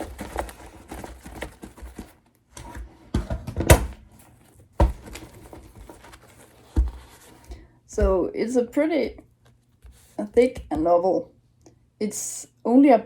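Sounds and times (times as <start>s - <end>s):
paper stack rustling: 0.0s - 8.1s
paper stack knocking on desk: 3.1s - 4.0s, 4.8s - 6.0s.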